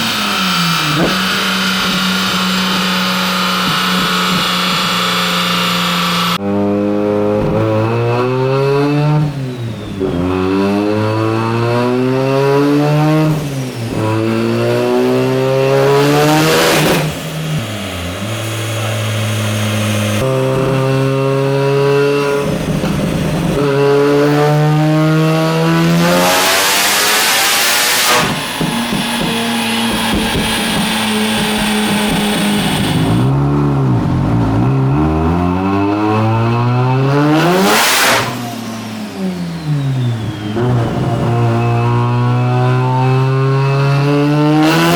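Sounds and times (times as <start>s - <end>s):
rotary engine revving: 0.0s - 44.9s
loud turbo hiss: 27.6s - 33.3s.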